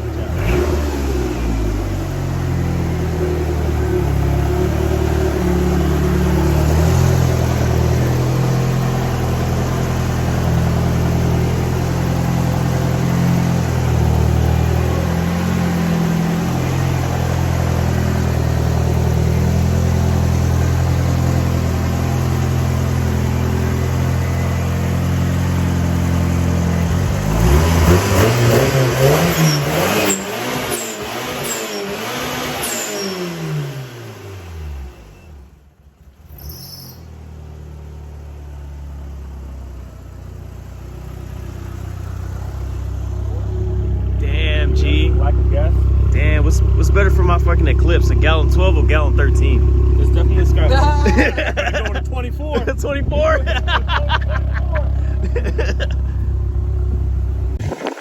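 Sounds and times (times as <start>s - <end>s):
car engine accelerating: 0.0s - 36.4s, 37.1s - 58.0s.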